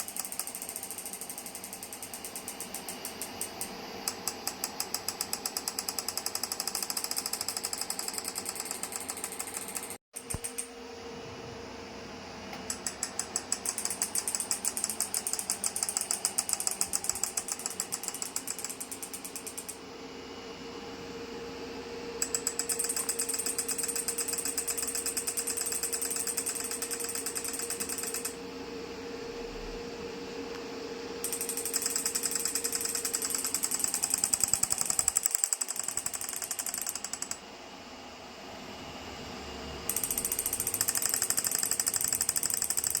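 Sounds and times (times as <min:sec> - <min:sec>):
rapid pulsing clicks: 0:39.9 - 0:43.0.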